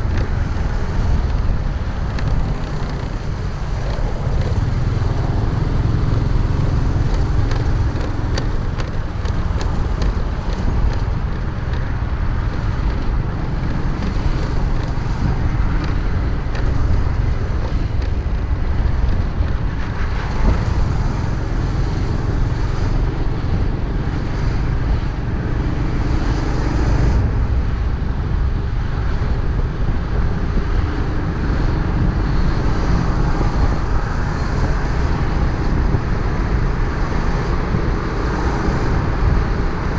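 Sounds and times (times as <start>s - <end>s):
motorcycle engine: 0.0s - 27.4s
wind rumble on microphone: 0.0s - 39.9s.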